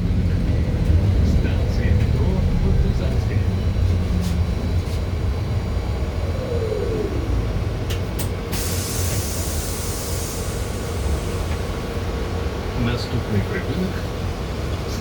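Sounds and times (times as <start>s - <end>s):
trolleybus running: 0.0s - 15.0s
air hiss: 8.5s - 11.5s.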